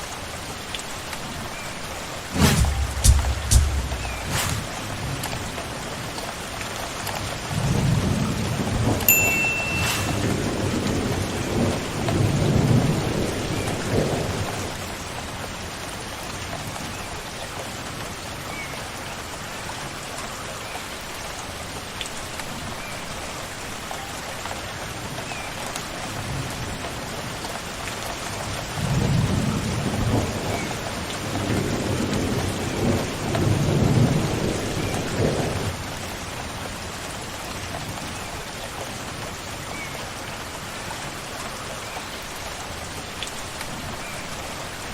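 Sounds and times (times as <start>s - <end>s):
steady rain falling: 0.0s - 44.9s
distant thunder rumbling: 2.3s - 5.6s.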